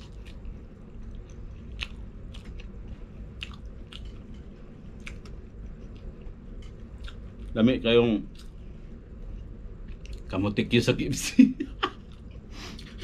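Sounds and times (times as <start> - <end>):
wet chewing with crunches: 0.0 - 7.6, 9.2 - 10.3.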